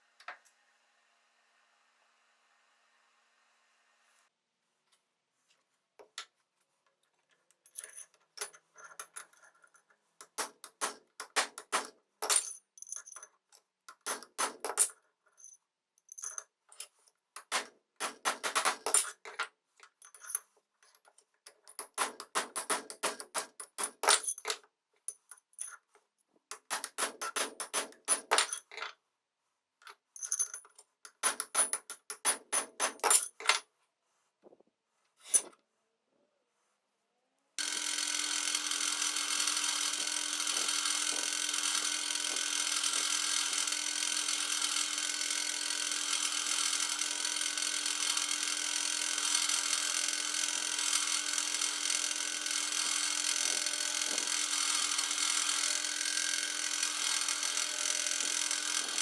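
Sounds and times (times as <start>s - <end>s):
small metal parts clinking: 7.5s - 25.9s, 26.5s - 28.9s, 29.8s - 33.6s, 53.4s - 55.6s.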